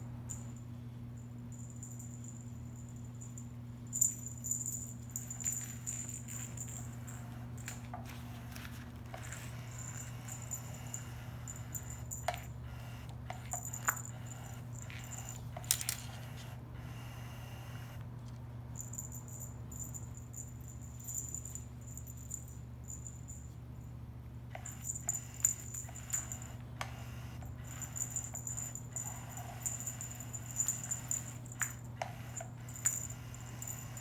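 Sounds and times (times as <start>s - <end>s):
steady low hum: 0.0s - 34.0s
kittens playing with clicks and rattles: 3.9s - 17.0s, 24.5s - 34.0s.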